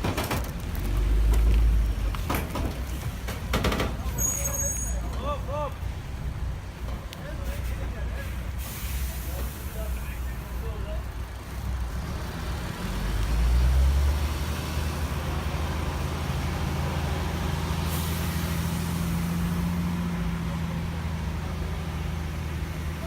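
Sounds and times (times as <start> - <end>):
heavy vehicle engine running: 0.0 - 23.0
short hiss: 7.4 - 10.2.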